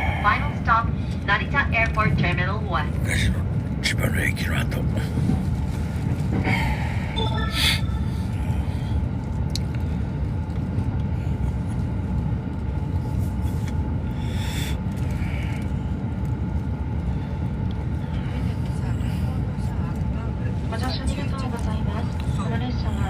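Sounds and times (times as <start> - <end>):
train rumble inside car: 0.0 - 23.0
brief high-pitched sounds: 7.2 - 8.1.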